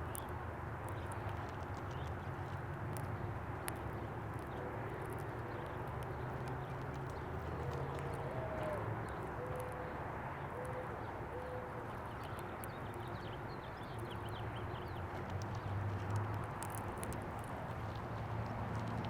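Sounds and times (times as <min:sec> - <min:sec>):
small birds chirping: 0:00.0 - 0:19.0
dove cooing: 0:07.4 - 0:11.9.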